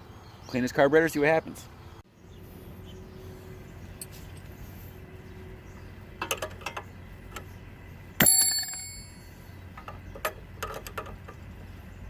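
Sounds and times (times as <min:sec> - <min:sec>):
sharp metal clang: 0:08.2 - 0:09.3
metal hand tools clinking: 0:08.2 - 0:09.4.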